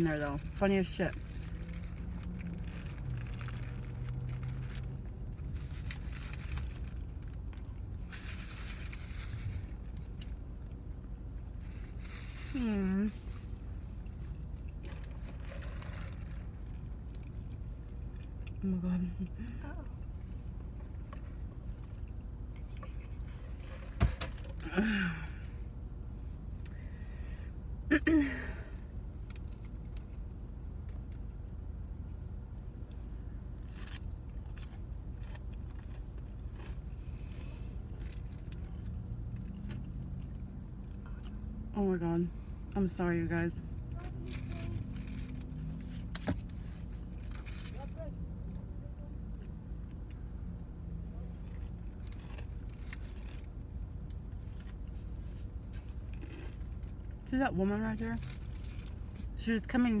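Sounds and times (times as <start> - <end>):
low hum inside car: 0.0 - 60.0
low steady rumble: 0.0 - 60.0
person chewing a burger: 1.2 - 18.6, 32.2 - 41.6, 49.3 - 57.2.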